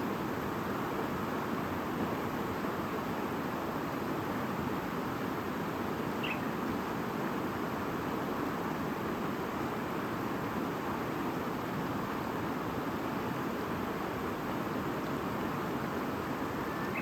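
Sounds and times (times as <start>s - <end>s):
bird chirp: 6.2s - 6.5s, 16.7s - 17.0s
babbling stream: 9.7s - 17.0s.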